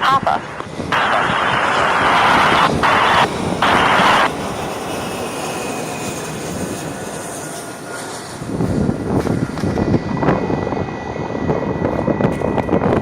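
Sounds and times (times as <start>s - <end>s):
radio static bursts: 0.0s - 4.3s
jet engines rushing: 0.0s - 13.0s.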